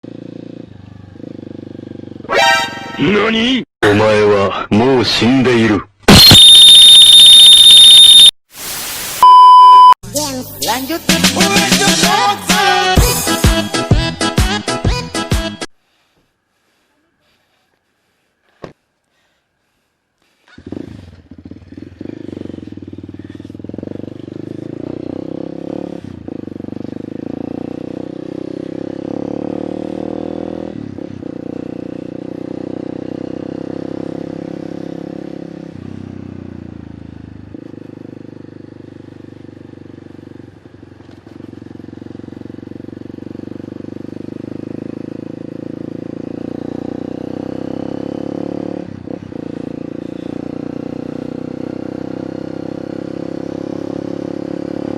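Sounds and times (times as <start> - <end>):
motorcycle engine through open pipe: 0.0 - 2.3, 20.5 - 54.9.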